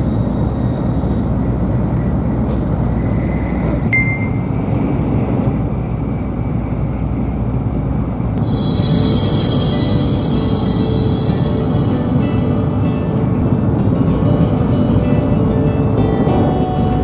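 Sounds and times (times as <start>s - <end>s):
train cabin rumble: 0.0s - 17.0s
music: 8.4s - 17.0s.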